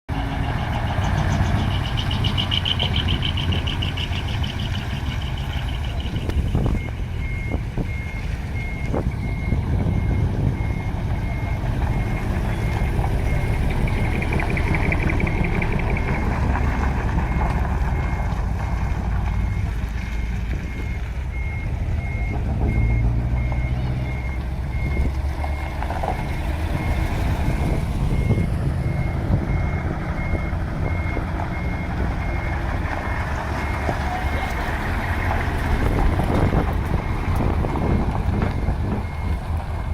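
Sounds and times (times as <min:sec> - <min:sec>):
diesel engines rumbling: 0:00.1 - 0:39.9
truck reversing alarm beeping: 0:00.1 - 0:39.9.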